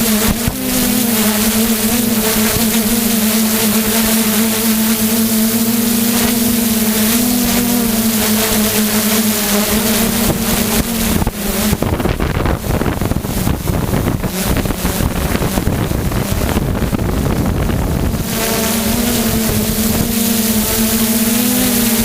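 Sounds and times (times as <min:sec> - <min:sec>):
drone propellers whining: 0:00.0 - 0:22.0
wind buffeting microphone: 0:09.5 - 0:22.0.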